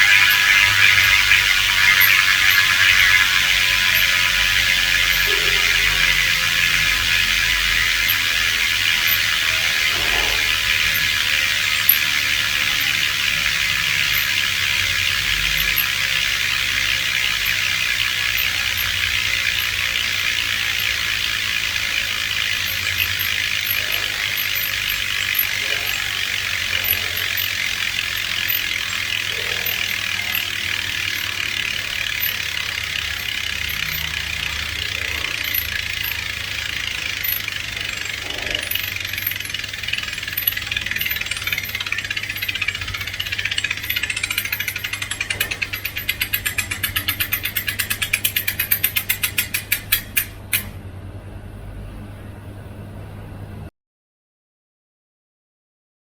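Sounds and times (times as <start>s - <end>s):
bicycle freehub ratcheting: 0.0s - 50.8s.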